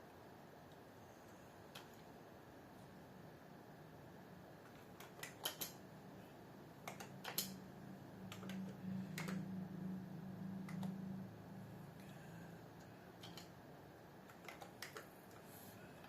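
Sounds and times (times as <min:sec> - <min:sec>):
low steady hum: 0:00.0 - 0:16.0
keyboard typing clicks: 0:04.7 - 0:05.8, 0:06.8 - 0:07.6, 0:08.2 - 0:09.5, 0:10.6 - 0:11.1, 0:13.2 - 0:13.6, 0:14.2 - 0:15.1.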